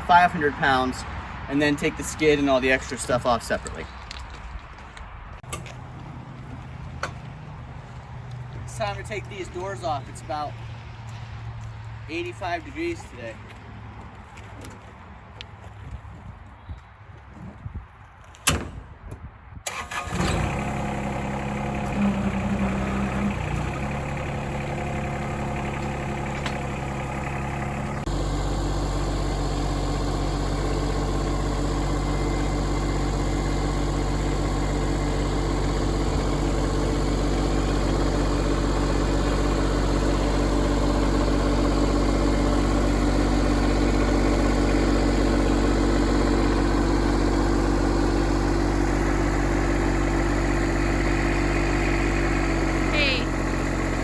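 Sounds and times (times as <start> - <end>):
tractor diesel engine running: 0.0 - 4.2, 19.7 - 54.0.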